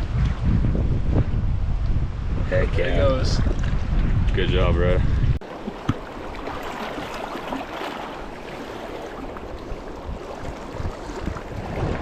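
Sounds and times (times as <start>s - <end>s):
creek water running over rocks: 5.4s - 12.0s.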